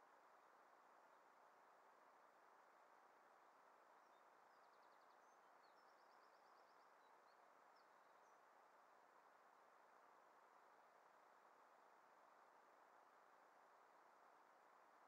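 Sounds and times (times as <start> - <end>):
faint bird chirps: 4.0 - 8.4.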